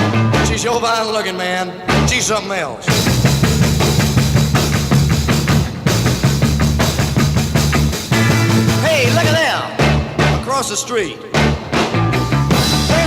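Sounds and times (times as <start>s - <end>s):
low bass notes: 0.0s - 0.8s, 1.9s - 2.3s, 2.9s - 10.6s, 11.4s - 13.0s
rock and roll band instrumental: 0.0s - 13.0s
drum kit beating: 2.9s - 10.7s, 11.3s - 13.0s.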